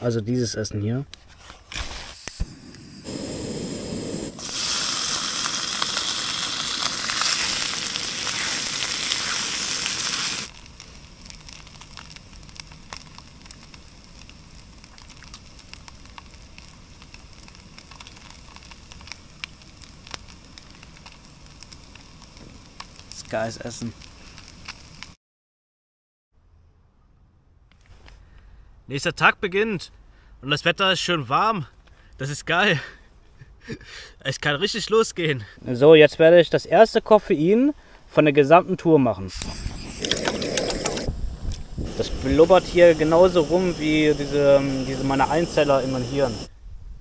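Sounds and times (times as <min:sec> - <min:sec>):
rice sizzling in frying pan: 0:02.6 - 0:25.2, 0:41.8 - 0:46.5.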